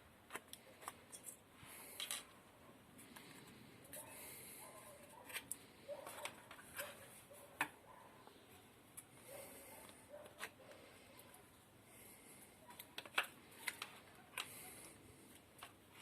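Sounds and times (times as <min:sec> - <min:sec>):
plastic parts scraping and clicking: 0:00.2 - 0:02.4, 0:04.8 - 0:07.8, 0:12.7 - 0:16.0.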